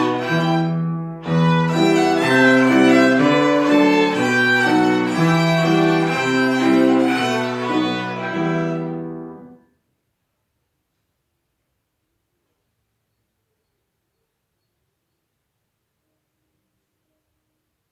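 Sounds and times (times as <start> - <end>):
violins playing sustained notes: 0.0 - 9.5.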